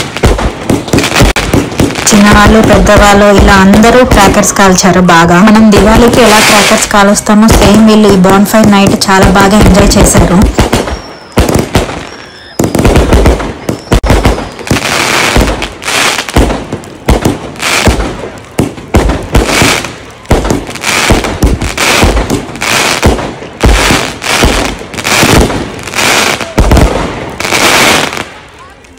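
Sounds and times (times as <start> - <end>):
fireworks bangs and crackles: 0.0 - 28.9
faint firework whistles: 10.5 - 16.2.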